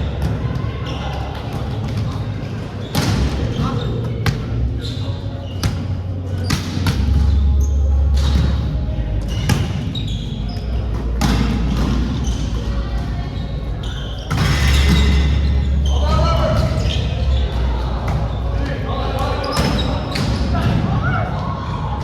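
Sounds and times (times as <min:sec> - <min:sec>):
shoes squeaking on court: 0:00.8 - 0:18.4.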